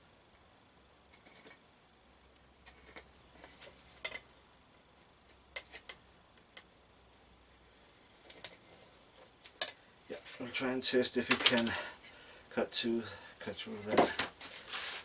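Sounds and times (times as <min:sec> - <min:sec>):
tools and wood set down on workbench: 0:13.9 - 0:14.4.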